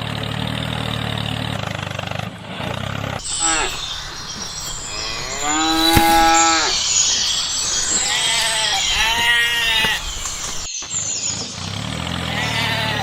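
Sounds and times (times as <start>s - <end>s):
bleating: 3.3s - 6.8s, 7.8s - 10.7s, 12.2s - 13.0s.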